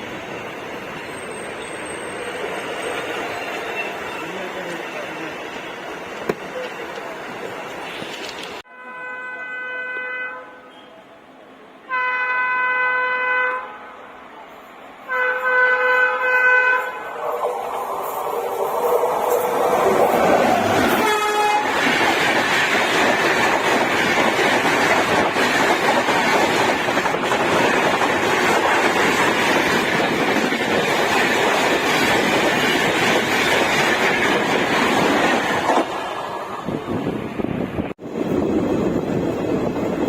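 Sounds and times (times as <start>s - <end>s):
train running on rails: 0.0s - 40.0s
train horn blast: 8.7s - 10.9s, 11.8s - 14.0s, 15.1s - 17.2s, 20.9s - 21.8s.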